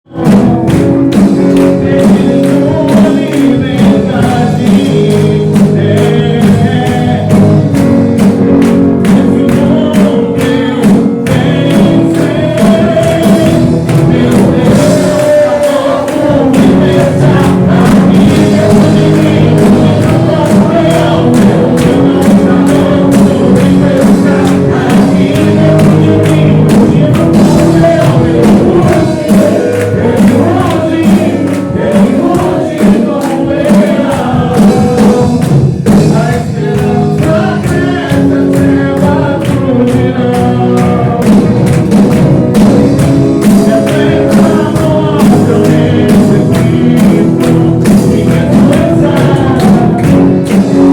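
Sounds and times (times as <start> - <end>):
worship band with singing: 0.1 - 50.9.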